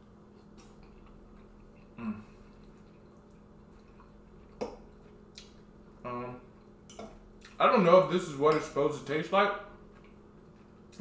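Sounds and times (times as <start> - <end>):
person eating: 0.0 - 7.6, 9.7 - 11.0
faint room hum: 0.0 - 11.0
person humming mm: 1.9 - 2.4.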